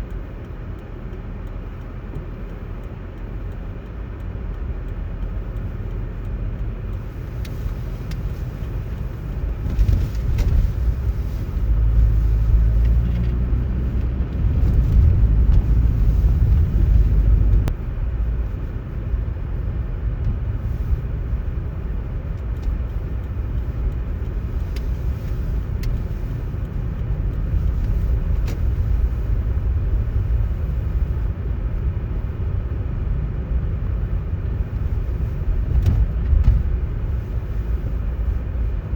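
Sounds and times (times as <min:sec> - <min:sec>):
road traffic rumble: 0:00.0 - 0:38.9
faint clicks: 0:22.3 - 0:29.3.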